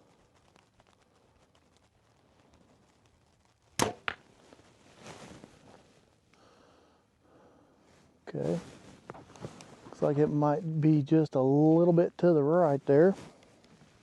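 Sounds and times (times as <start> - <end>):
arrow striking target: 3.8 - 4.2
bowstring release crack: 3.8 - 4.2.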